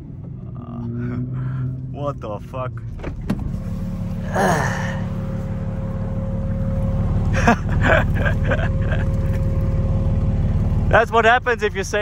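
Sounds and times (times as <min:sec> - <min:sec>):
car engine idling: 0:00.0 - 0:12.0
person sighing breath: 0:04.2 - 0:05.1.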